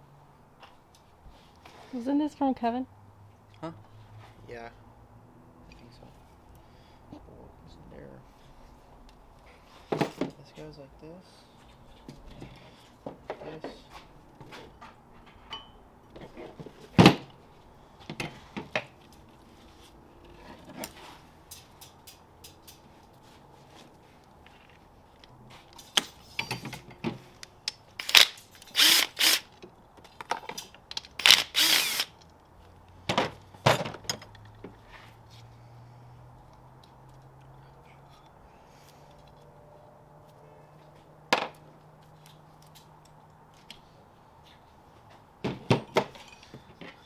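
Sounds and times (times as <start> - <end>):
metal clicks and knocks: 21.5 - 22.9
short bursts of tool noise: 28.0 - 29.5, 31.2 - 32.2.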